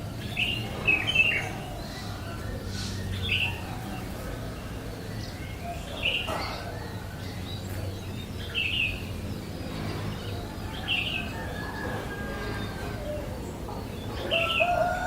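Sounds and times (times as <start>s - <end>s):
bird chirping: 0.0s - 11.5s.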